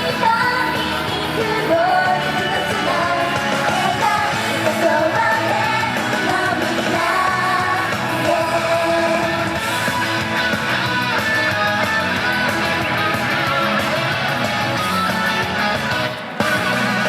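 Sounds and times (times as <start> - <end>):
women singing pop-rock song: 0.0 - 12.3
amplified band with electric guitar: 0.0 - 17.0.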